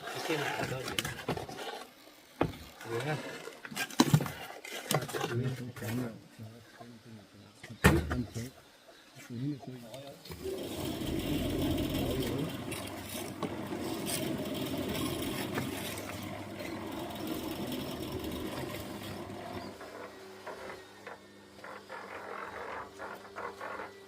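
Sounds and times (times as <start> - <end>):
small engine chattering: 10.3 - 24.0.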